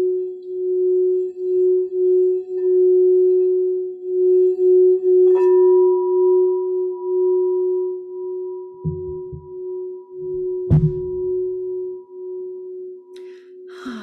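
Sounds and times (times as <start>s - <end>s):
crystal singing bowl ringing: 0.0s - 14.0s
sharp bowl strike: 8.8s - 9.6s, 10.2s - 11.6s.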